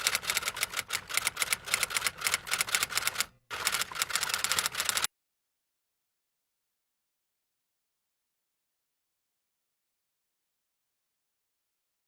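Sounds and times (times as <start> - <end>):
rapid typing clicks: 0.0 - 5.1.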